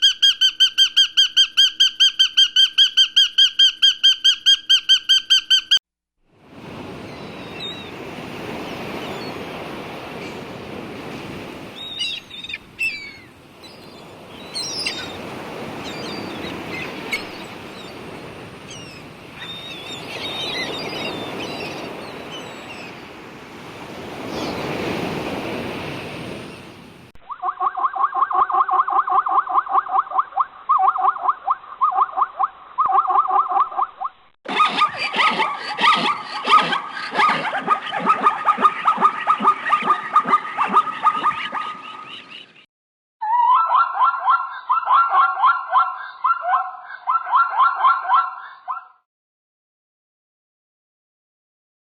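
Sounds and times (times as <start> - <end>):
surf washing in: 6.3 - 27.1
small birds chirping: 11.8 - 23.0
animal making rapid calls: 27.3 - 42.4.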